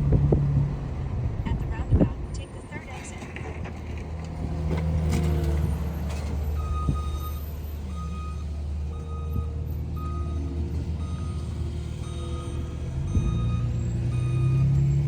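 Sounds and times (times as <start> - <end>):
low vehicle rumble: 0.0 - 15.0
truck reversing alarm beeping: 5.4 - 15.0.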